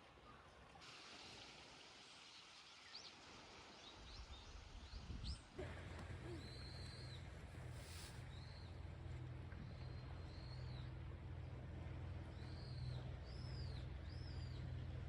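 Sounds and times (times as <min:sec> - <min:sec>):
outdoor ambience: 0:00.0 - 0:15.0
low steady hum: 0:03.4 - 0:15.0.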